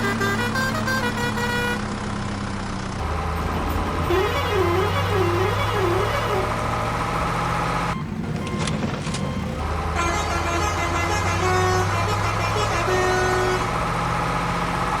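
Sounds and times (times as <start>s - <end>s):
horn-like tooting: 0.0s - 1.9s, 3.9s - 7.2s, 9.9s - 14.2s
cartoon engine drone: 3.0s - 14.4s.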